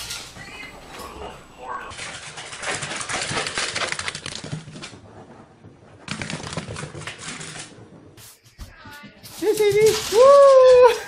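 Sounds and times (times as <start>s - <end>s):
rapid clicking and rattling: 1.9s - 5.3s, 6.0s - 8.1s.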